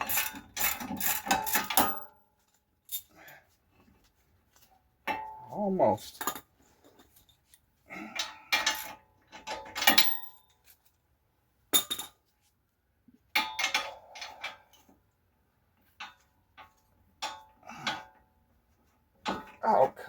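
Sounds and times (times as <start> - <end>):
metal tools clanking on steel parts: 0.0 - 2.2, 8.1 - 10.6.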